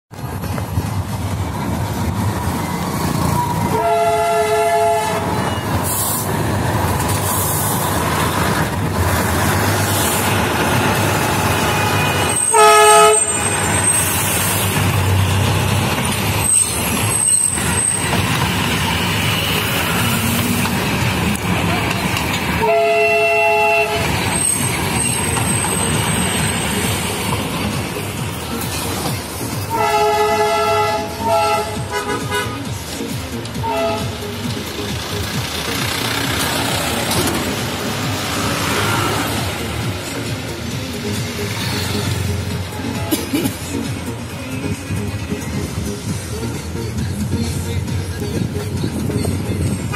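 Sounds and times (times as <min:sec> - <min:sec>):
diesel train passing: 0:00.1 - 0:49.9
train horn toots: 0:03.4 - 0:05.8, 0:11.4 - 0:14.2, 0:22.5 - 0:24.4, 0:29.7 - 0:32.7, 0:33.6 - 0:34.3.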